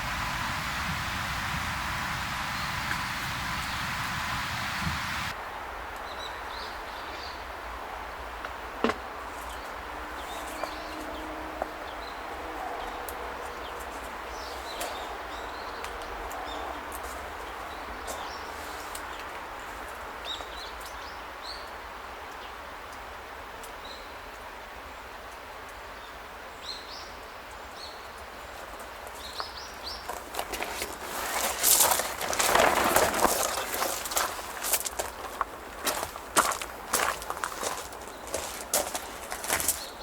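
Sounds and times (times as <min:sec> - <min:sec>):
small birds chirping: 0:00.0 - 0:05.4, 0:09.0 - 0:21.8, 0:26.0 - 0:40.0
outdoor background hiss: 0:00.0 - 0:40.0
clicks and rustles: 0:30.0 - 0:39.9.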